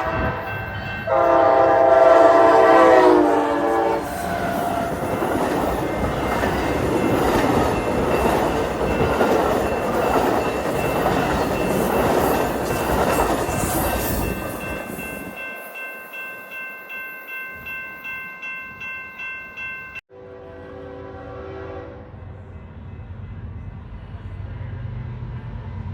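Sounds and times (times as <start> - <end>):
train wheels rushing on rail: 0.0 - 15.8.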